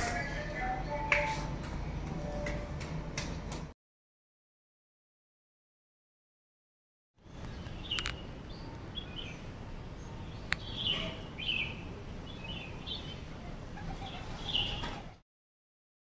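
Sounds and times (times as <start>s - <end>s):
birds chirping: 7.2s - 15.2s
low outdoor rumble: 7.2s - 15.2s.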